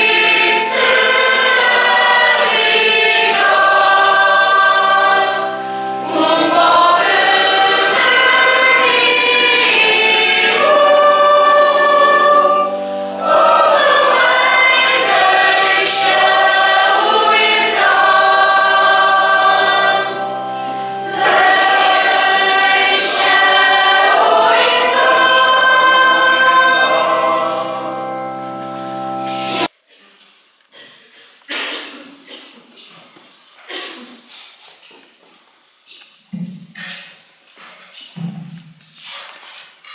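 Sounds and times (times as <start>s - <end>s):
church choir singing: 0.0s - 29.7s
singers breathing: 5.6s - 6.0s.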